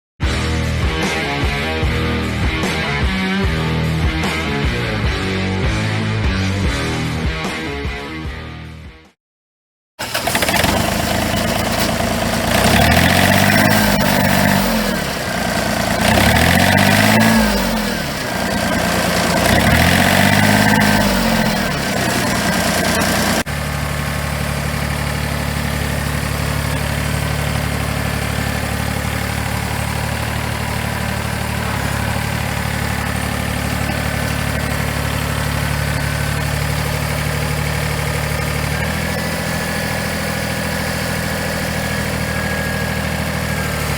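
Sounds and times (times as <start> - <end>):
tractor diesel engine revving: 10.0 - 43.9.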